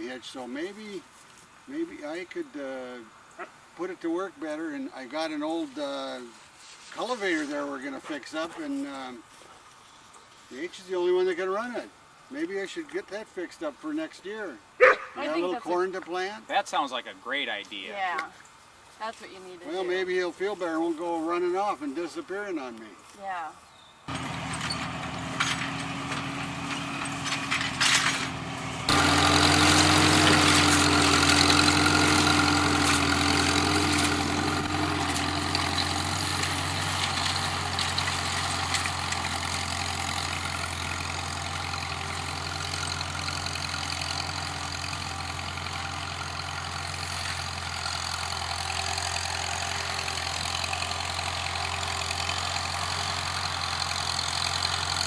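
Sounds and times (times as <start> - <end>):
tractor engine idling: 24.1 - 55.0
tractor engine knocks: 24.1 - 55.0.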